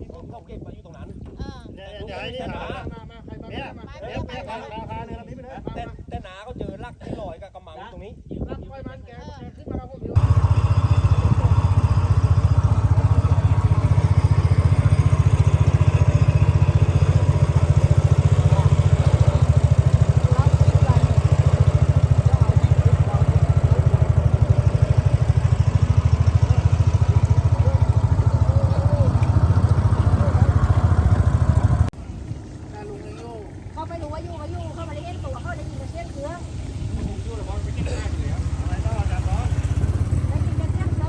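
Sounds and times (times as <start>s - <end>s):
small boat engine running: 10.2s - 41.0s
faint voices: 10.6s - 31.9s.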